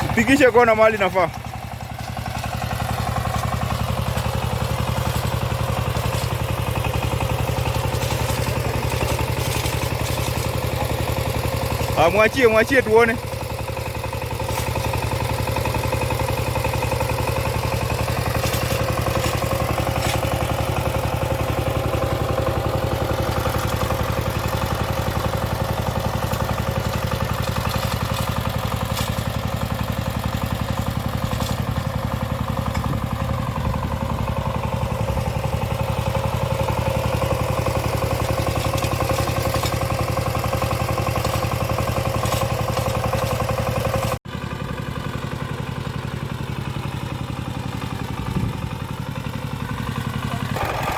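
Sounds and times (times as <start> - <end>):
tractor engine running: 0.0 - 50.9
faint clatter: 40.9 - 43.7.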